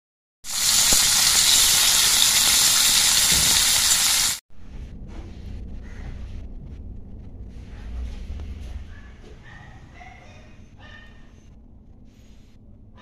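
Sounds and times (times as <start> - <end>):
beans sizzling in hot oil: 0.5 - 4.4.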